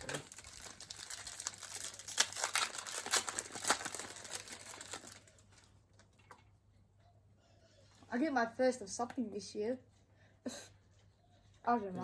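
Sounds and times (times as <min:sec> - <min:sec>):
wrapper crinkling and tearing: 0:00.0 - 0:06.1.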